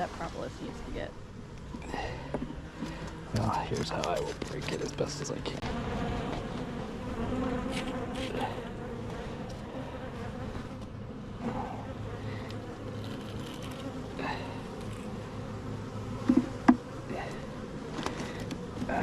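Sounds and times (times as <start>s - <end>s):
honeybees buzzing: 0.0s - 19.0s
hive frame scraping and cracking: 2.8s - 10.8s, 12.4s - 15.3s, 16.2s - 19.0s.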